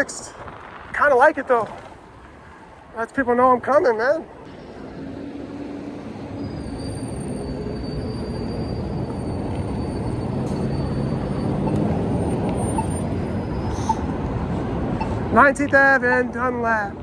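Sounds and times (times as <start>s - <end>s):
wind and road rumble: 0.0s - 17.0s
thin high squeal: 6.3s - 11.8s.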